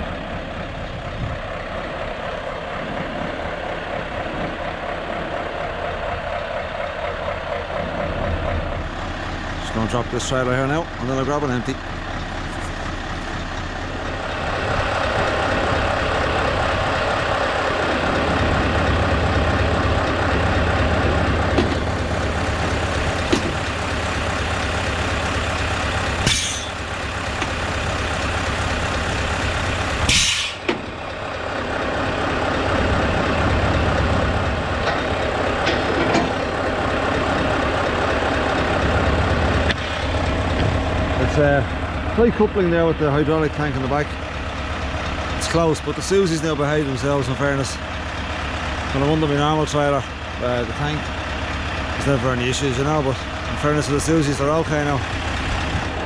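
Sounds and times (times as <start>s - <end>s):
truck engine running: 0.0s - 56.0s
air hissing: 30.0s - 30.7s.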